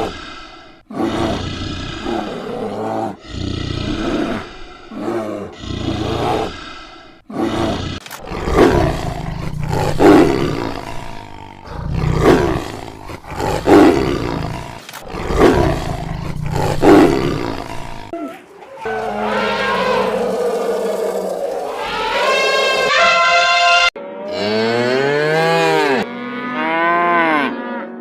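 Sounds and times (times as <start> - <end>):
large animal roaring: 0.9 - 23.0
drawn-out animal call: 18.1 - 23.3.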